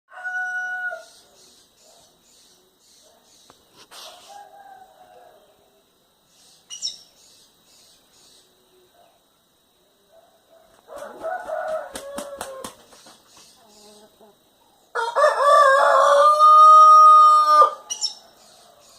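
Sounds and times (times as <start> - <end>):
high bird chirping: 6.3 - 8.5, 17.8 - 18.9
birds calling: 6.3 - 9.1, 10.6 - 15.0, 17.0 - 18.9.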